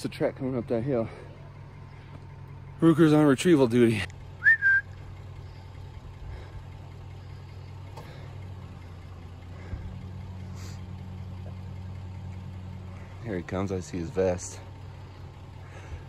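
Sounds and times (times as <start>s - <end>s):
truck engine idling: 0.0s - 16.0s
rising whistle: 4.4s - 5.0s.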